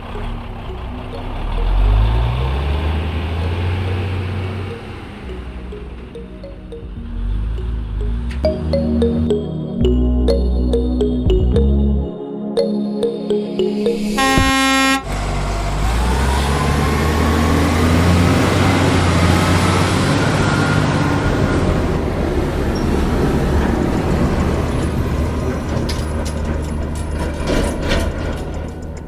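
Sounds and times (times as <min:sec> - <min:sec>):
heavy engine rumbling: 0:00.0 - 0:11.8, 0:13.9 - 0:29.0
music: 0:00.1 - 0:02.7, 0:03.4 - 0:15.0.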